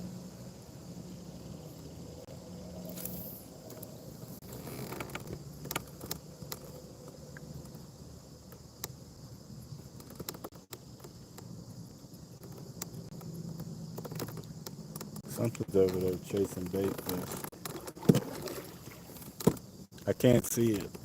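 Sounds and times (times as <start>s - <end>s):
faint insect buzz: 0.0s - 21.0s
fishing gear clicks and taps: 9.9s - 18.2s.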